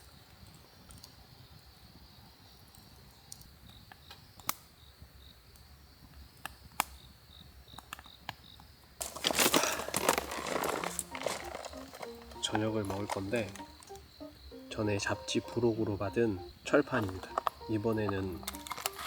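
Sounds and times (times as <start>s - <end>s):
crickets chirring: 7.0s - 19.0s.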